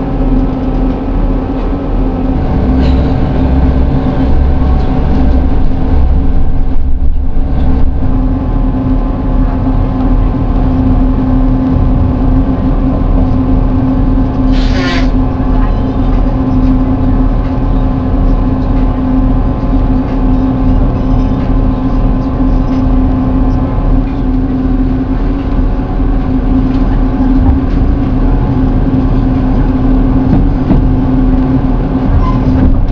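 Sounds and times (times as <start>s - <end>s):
constant hum: 0.0s - 32.9s
train engine drone: 0.0s - 32.9s
wheels rumbling: 0.0s - 32.9s.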